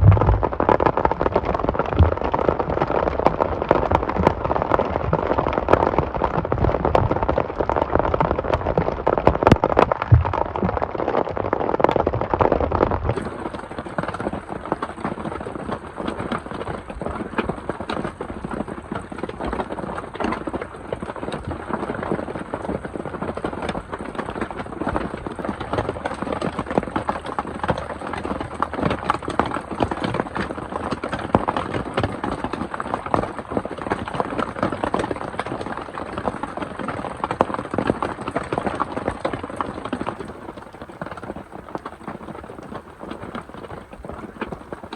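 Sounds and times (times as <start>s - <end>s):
heavy rain falling: 40.2s - 44.9s.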